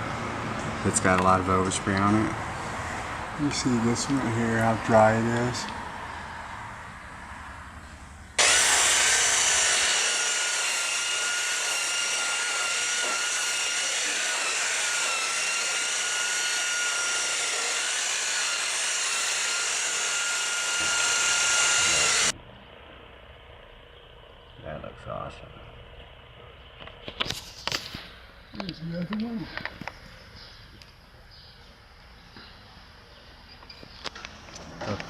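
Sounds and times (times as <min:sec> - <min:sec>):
electric polishing buffer whining: 0:08.4 - 0:22.4.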